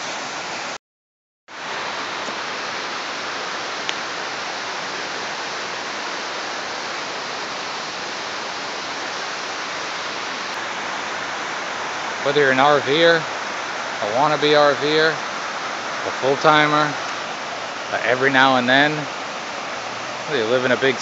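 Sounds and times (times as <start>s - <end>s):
running water rushing: 0.0s - 0.8s, 1.5s - 21.0s.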